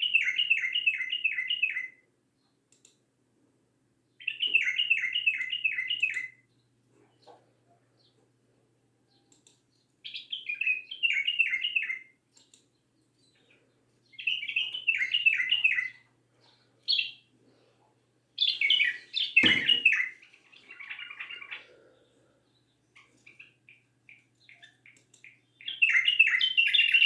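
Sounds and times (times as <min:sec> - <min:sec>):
songbird singing: 0:00.0 - 0:02.6, 0:04.1 - 0:08.3, 0:08.9 - 0:17.7, 0:18.4 - 0:27.0
sharp knock: 0:19.4 - 0:19.8.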